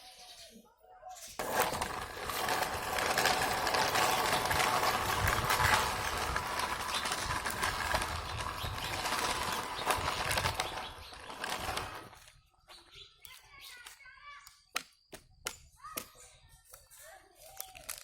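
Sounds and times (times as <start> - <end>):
toy mechanism rattling and whirring: 1.3 - 12.4.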